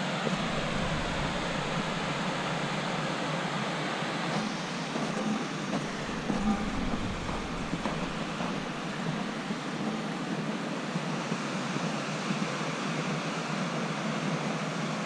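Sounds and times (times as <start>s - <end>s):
creek and waterfall rushing: 0.0s - 10.2s.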